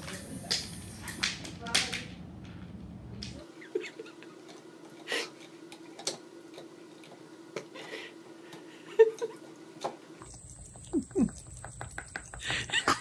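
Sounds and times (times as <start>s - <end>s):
electric toothbrush buzzing: 3.4s - 13.0s
cat chewing on brush head: 10.2s - 12.8s
teeth clicking on plastic: 10.3s - 12.7s.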